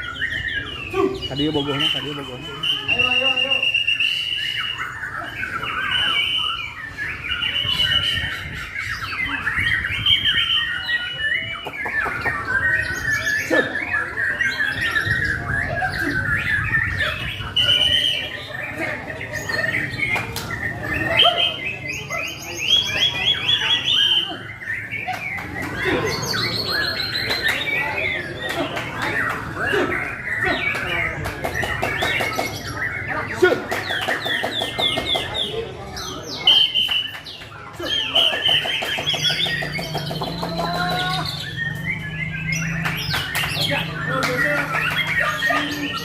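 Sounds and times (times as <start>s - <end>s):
songbird singing whistles and trills: 0.0s - 28.3s.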